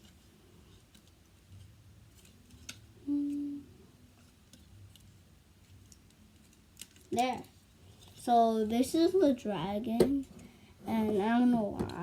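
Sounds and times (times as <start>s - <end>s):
person humming: 3.0s - 3.8s
plastic toy parts clicking: 5.9s - 7.5s.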